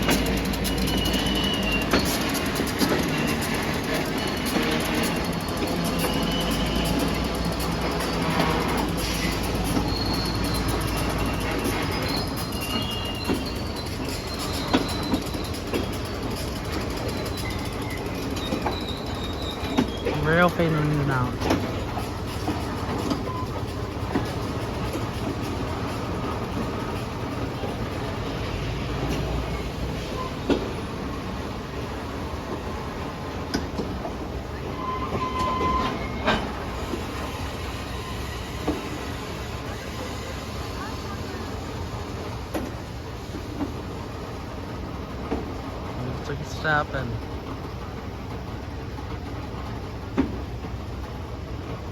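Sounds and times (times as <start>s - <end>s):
clunks over rail joints: 0.0s - 27.8s, 28.9s - 31.2s
wheel squeal: 0.0s - 44.2s
freight train rolling on rails: 0.0s - 51.9s.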